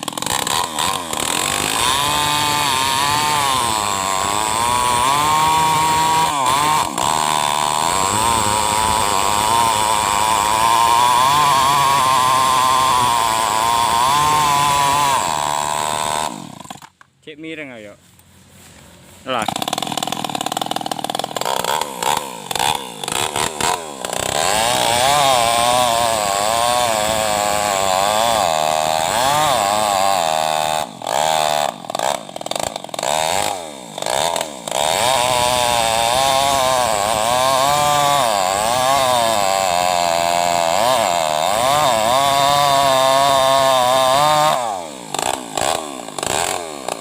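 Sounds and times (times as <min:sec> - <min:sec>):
chainsaw cutting wood: 0:00.0 - 0:17.1, 0:19.3 - 0:47.0.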